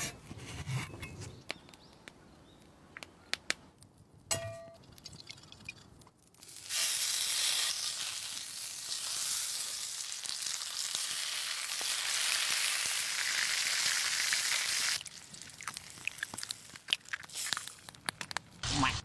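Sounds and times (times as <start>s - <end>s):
food sizzling in a frying pan: 6.4s - 17.5s.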